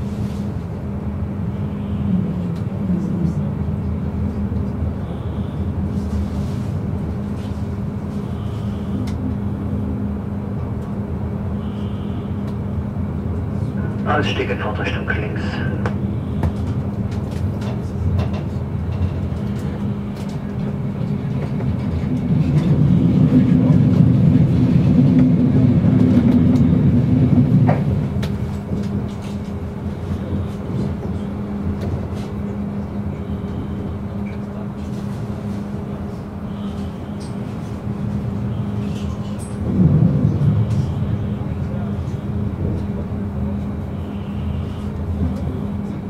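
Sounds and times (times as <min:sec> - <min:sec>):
constant hum: 0:00.1 - 0:46.0
train wheels rumbling on track: 0:12.3 - 0:46.0.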